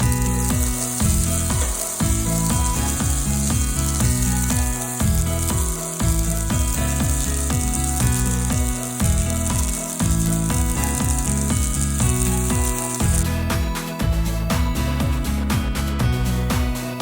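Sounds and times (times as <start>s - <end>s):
food sizzling in a frying pan: 0.0s - 13.6s
background music: 0.0s - 17.0s.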